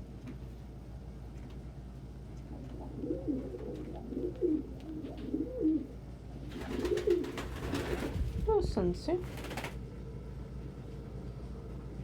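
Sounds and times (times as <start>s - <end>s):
pigeons cooing: 2.5s - 8.2s.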